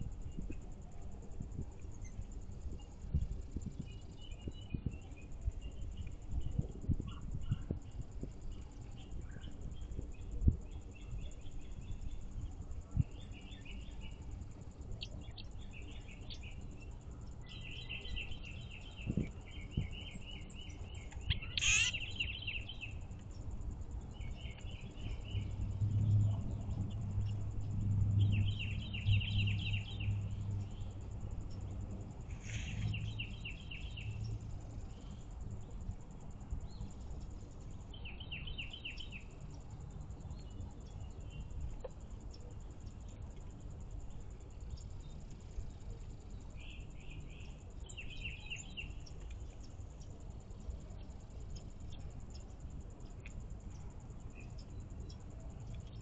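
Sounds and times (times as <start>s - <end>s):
songbird trilling: 17.4s - 23.0s, 28.2s - 30.9s, 32.4s - 34.2s
low hum: 23.3s - 32.2s.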